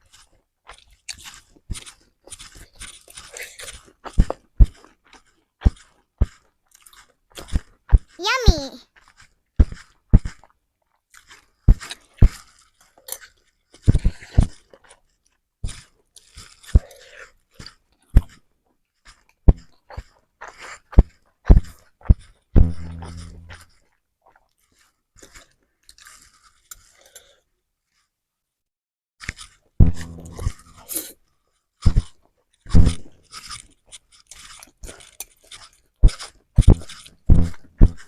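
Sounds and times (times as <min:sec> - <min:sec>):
person chewing with smacks: 0:00.0 - 0:08.2, 0:09.0 - 0:27.5, 0:29.2 - 0:32.3, 0:32.9 - 0:38.0
longer low mouth sound: 0:22.6 - 0:23.6.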